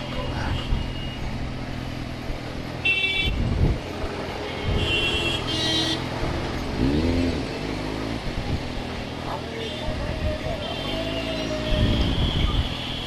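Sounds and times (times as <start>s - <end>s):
traffic engine hum: 0.0s - 13.0s
vehicle horns honking: 2.8s - 3.4s, 4.5s - 6.1s, 9.6s - 13.0s
engine revving: 6.2s - 8.6s.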